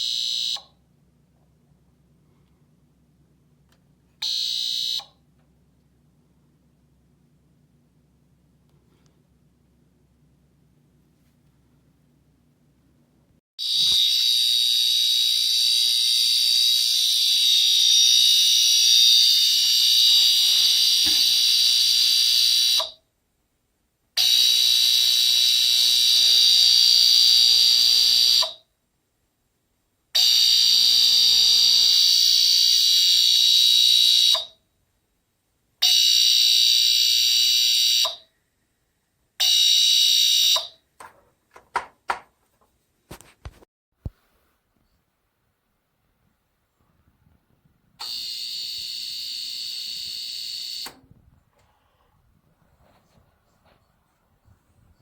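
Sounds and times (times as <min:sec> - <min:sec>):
high-pitched electronic alarm: 0:00.0 - 0:00.7, 0:04.2 - 0:05.2, 0:48.0 - 0:51.0.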